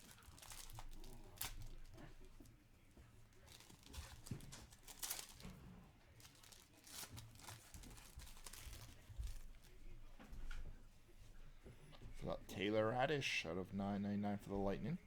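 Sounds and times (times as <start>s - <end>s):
wrappers tearing and crinkling: 0.0s - 2.0s, 3.4s - 5.6s, 6.2s - 9.6s.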